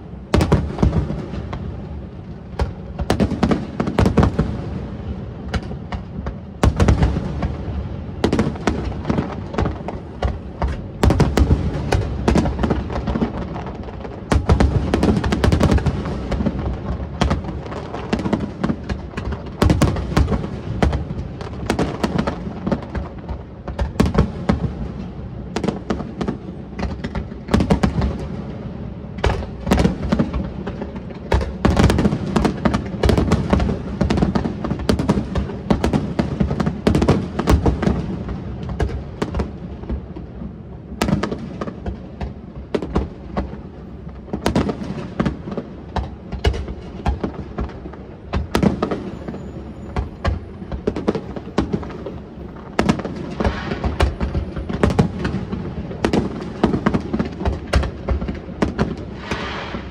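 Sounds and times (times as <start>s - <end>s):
fireworks bursting and crackling: 0.0s - 59.9s.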